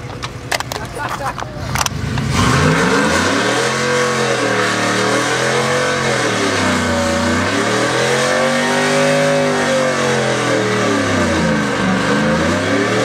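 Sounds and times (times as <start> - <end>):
spinning tyres hissing: 1.4 - 13.0
pickup engine revving hard: 1.7 - 13.0.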